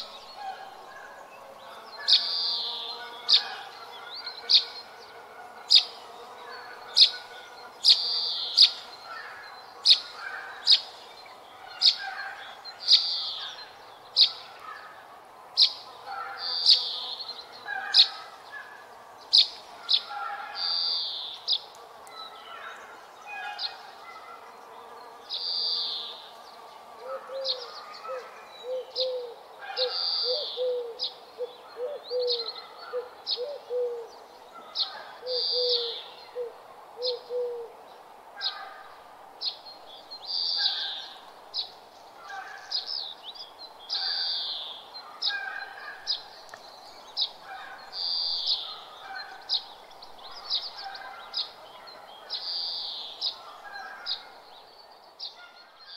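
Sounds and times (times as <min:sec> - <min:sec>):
low evenly spaced bird notes: 0:00.0 - 0:55.9.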